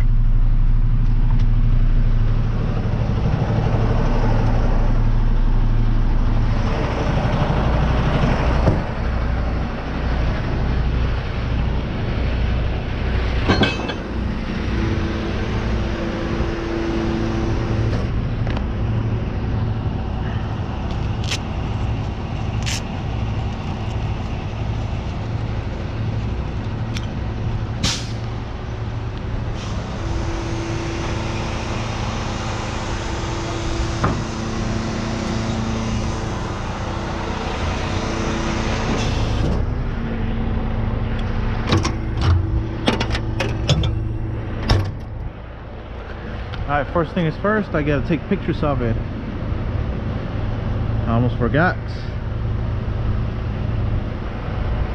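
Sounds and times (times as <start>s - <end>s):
truck engine humming: 0.0s - 54.9s
sharp clicks and knocks: 41.2s - 45.2s.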